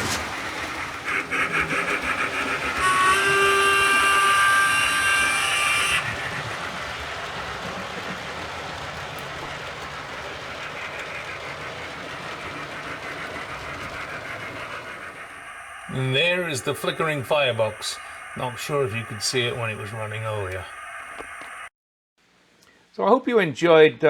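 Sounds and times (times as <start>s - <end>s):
locomotive hiss and rumble: 0.0s - 21.7s
model steam exhaust chuffs: 0.0s - 21.7s
steam whistle chord: 2.4s - 6.3s.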